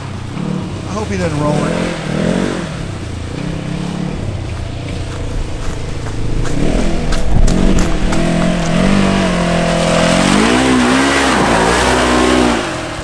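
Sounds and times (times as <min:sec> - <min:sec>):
engine revving hard: 0:00.0 - 0:13.0.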